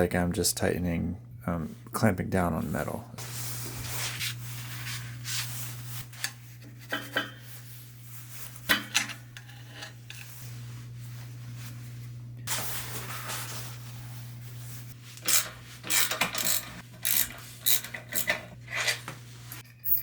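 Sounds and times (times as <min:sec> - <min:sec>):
steady low hum: 0:00.0 - 0:19.7
scrubbing and wiping metal: 0:03.2 - 0:16.0
metallic clinks: 0:19.6 - 0:20.0.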